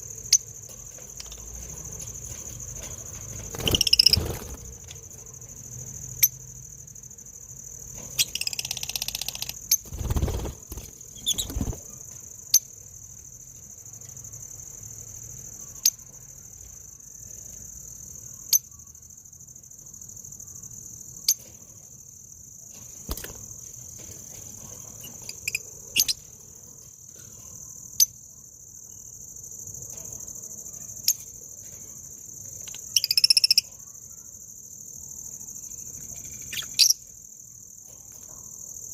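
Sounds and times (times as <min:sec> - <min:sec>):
high-pitched insect drone: 0:03.4 - 0:04.8, 0:08.2 - 0:11.9.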